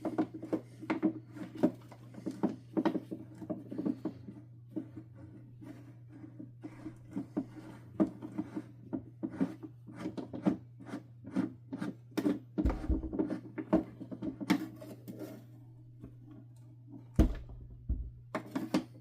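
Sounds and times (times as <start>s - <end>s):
heavier knocks and thumps: 12.6s - 13.3s, 17.2s - 18.3s.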